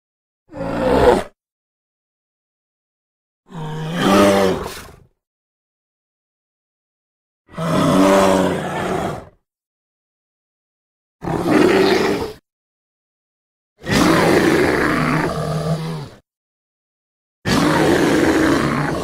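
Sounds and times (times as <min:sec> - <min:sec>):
bear roaring: 0:00.5 - 0:01.4, 0:03.5 - 0:05.0, 0:07.5 - 0:09.4, 0:11.2 - 0:12.4, 0:13.8 - 0:16.2, 0:17.5 - 0:19.0.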